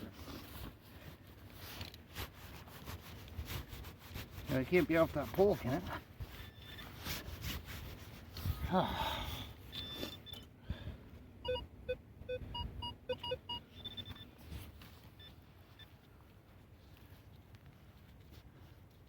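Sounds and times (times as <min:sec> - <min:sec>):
metal detector high beeps: 0:06.4 - 0:06.9, 0:09.7 - 0:10.4, 0:11.5 - 0:14.3
metal detector low beeps: 0:06.4 - 0:07.0, 0:09.7 - 0:10.5, 0:11.4 - 0:14.4.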